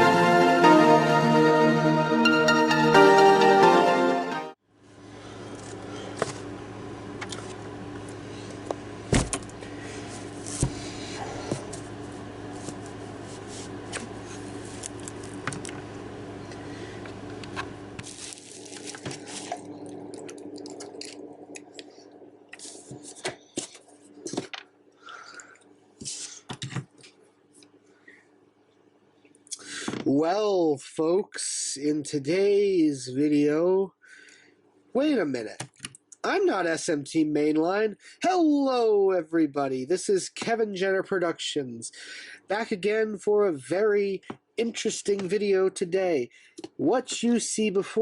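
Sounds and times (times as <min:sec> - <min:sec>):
electrical hum: 0:05.0 - 0:29.3.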